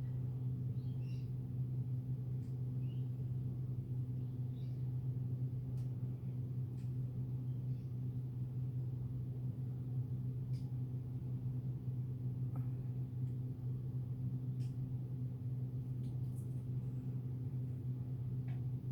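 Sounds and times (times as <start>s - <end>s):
steady low hum: 0.0s - 18.9s
faint high bird chirps: 0.7s - 1.3s, 2.8s - 3.2s, 4.2s - 4.9s.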